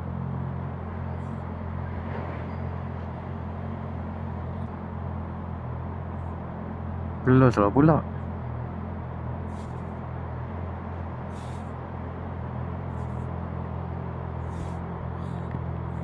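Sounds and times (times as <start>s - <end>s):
motorcycle engine running at low revs: 0.0s - 16.0s
short hisses: 11.3s - 11.8s, 14.4s - 15.4s.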